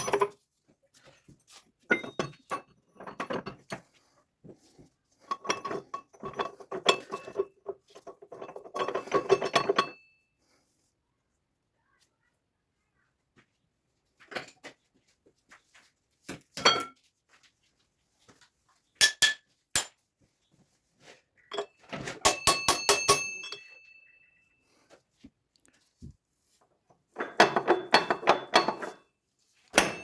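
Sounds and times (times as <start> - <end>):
metal tools clinking: 0.0 - 0.4, 1.0 - 3.9, 5.2 - 10.1, 21.4 - 24.2, 27.1 - 29.0, 29.7 - 30.0
rapid ringing metal taps: 22.2 - 23.7.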